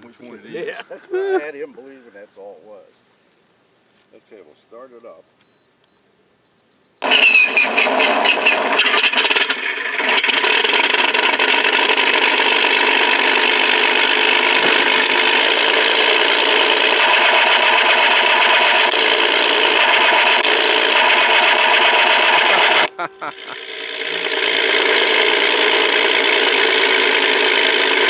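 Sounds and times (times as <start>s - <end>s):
simulated airplane engine drone: 16.7s - 23.8s.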